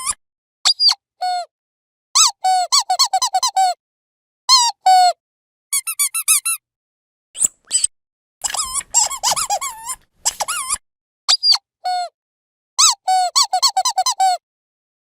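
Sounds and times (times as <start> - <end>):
squeaky dog toy squeaking: 0.0 - 1.0, 2.2 - 3.8, 5.7 - 6.6, 7.4 - 12.0, 12.8 - 14.4.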